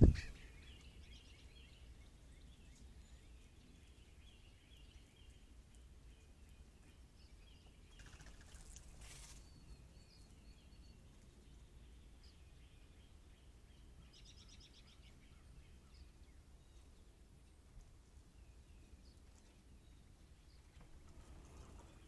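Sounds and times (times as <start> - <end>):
distant birds chirping: 0.0 - 17.0.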